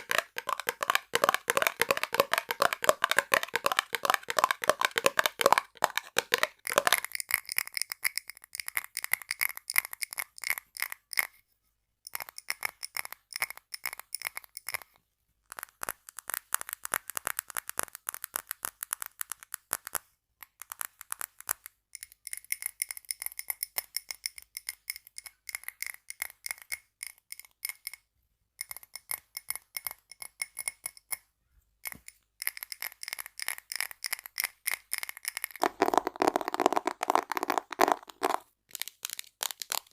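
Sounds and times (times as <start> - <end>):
scratching on tape: 0.0 - 7.0, 35.6 - 39.9
tapping on glass bottles: 0.0 - 7.9, 31.9 - 38.4.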